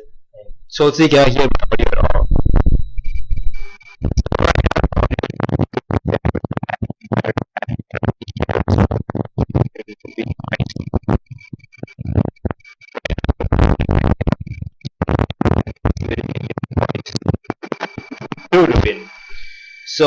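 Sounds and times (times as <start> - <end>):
person speaking: 0.7 - 2.3, 4.1 - 11.2, 15.1 - 17.4, 18.5 - 19.1
wind buffeting microphone: 2.0 - 2.8.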